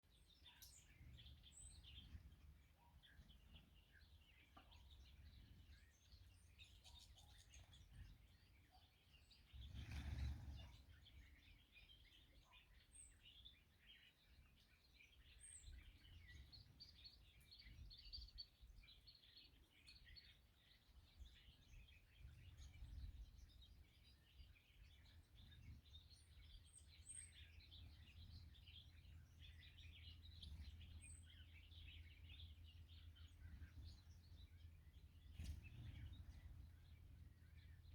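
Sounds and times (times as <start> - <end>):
small songbirds chirping: 0.0 - 37.9
low outdoor rumble: 24.9 - 37.9.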